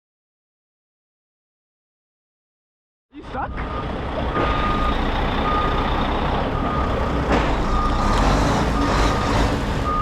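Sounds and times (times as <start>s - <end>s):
diesel engine rumble: 3.2s - 10.0s
backup alarm beeping: 3.4s - 5.9s.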